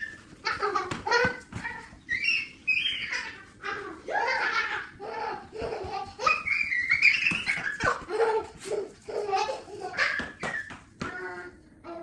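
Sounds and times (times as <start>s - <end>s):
child squealing: 1.3s - 5.0s, 6.2s - 8.5s.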